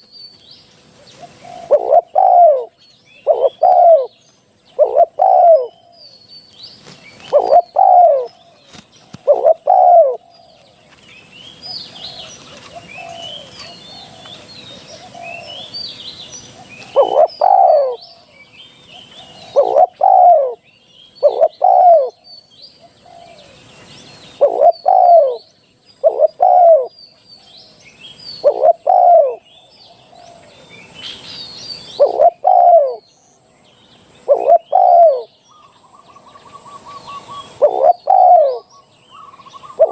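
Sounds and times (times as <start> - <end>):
small birds chirping: 0.0 - 39.9
dove cooing: 0.9 - 6.1, 7.1 - 10.6, 11.6 - 15.8, 16.5 - 18.3, 18.9 - 20.6, 21.2 - 22.2, 24.3 - 27.0, 28.4 - 30.6, 31.8 - 33.1, 34.2 - 39.9.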